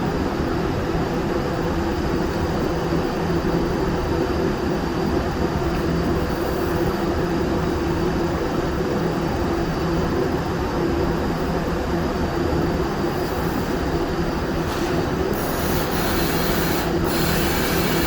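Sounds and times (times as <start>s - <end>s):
extraction fan humming: 10.3s - 18.0s
spray gun air rush: 14.6s - 18.0s.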